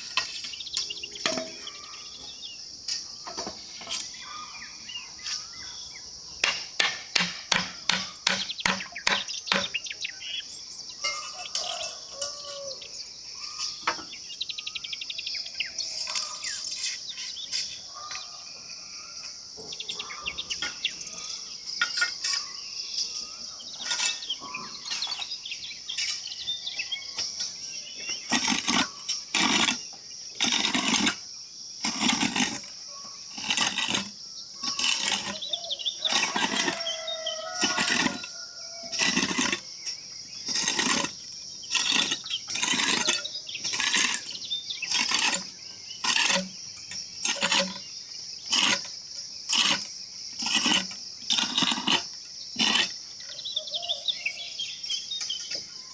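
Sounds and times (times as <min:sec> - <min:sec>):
insects droning: 0:00.0 - 0:55.9
bird chirps: 0:08.0 - 0:18.4, 0:19.5 - 0:28.4, 0:34.5 - 0:36.2, 0:53.2 - 0:55.9.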